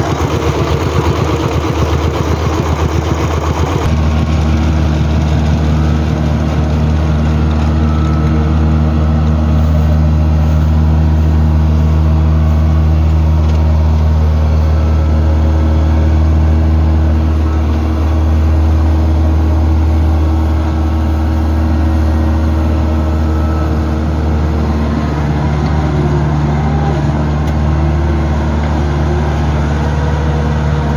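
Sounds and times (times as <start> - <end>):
diesel engine droning: 0.0 - 30.9.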